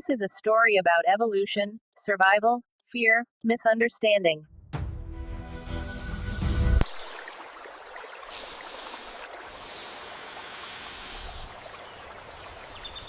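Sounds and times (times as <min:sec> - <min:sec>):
snake hissing: 0:05.9 - 0:06.8, 0:08.2 - 0:11.6.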